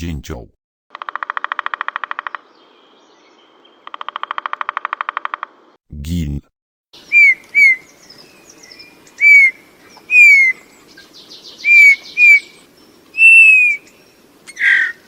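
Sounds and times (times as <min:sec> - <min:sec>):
bullfinch piped whistles: 0:07.0 - 0:10.6, 0:11.6 - 0:12.6, 0:13.2 - 0:13.9.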